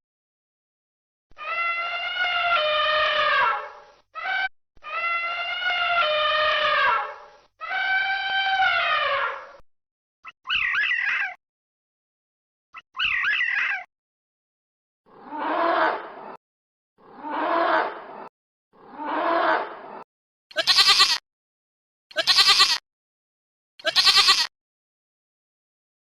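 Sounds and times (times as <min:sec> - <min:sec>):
deep animal call: 0:01.4 - 0:09.6, 0:17.0 - 0:18.2
wavering animal calls: 0:01.4 - 0:09.6, 0:10.2 - 0:11.4, 0:13.0 - 0:13.9.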